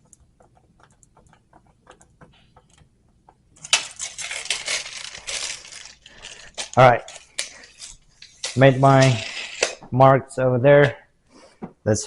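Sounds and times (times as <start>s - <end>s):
tape measure blade retracting: 3.6s - 9.8s.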